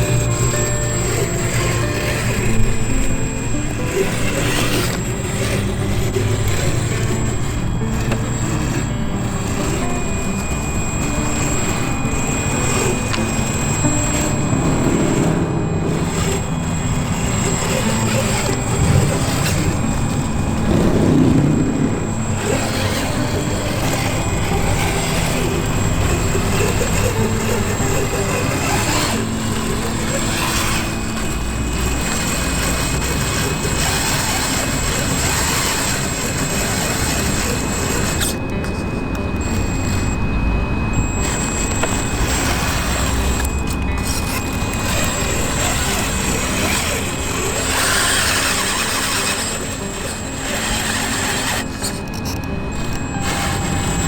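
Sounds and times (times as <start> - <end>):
electric motor and gears whining: 0.0 - 54.0.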